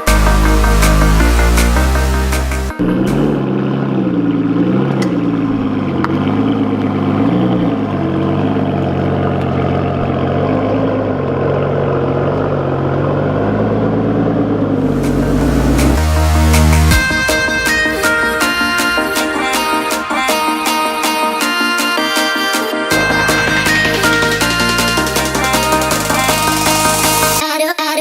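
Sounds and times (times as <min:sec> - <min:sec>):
car engine running: 0:00.0 - 0:21.7, 0:22.9 - 0:27.4.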